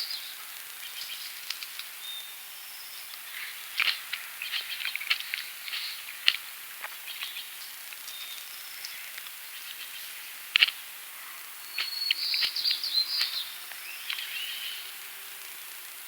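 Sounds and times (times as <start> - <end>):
steady high hiss: 0.0 - 16.0
birds chirping and singing: 11.6 - 14.9.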